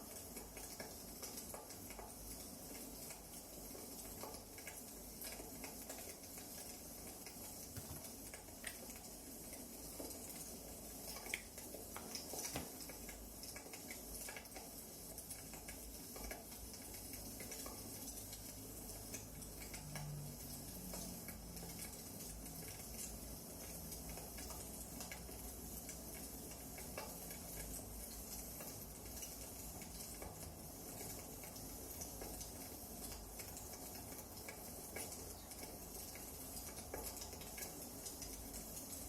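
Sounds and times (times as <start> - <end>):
wood fire crackling: 0.1 - 17.8.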